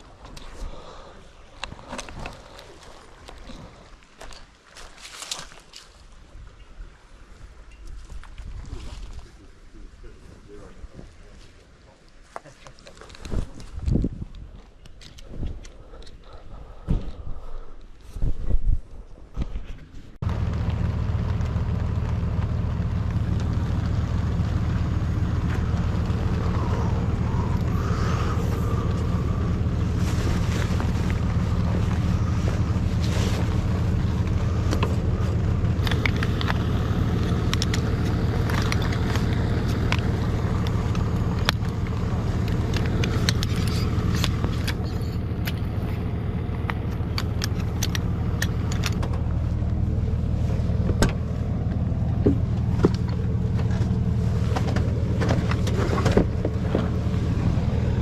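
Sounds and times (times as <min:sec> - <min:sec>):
vehicle engine and tyres droning: 0:14.7 - 0:58.0
rattles and clicks: 0:20.2 - 0:49.8, 0:50.8 - 0:58.0.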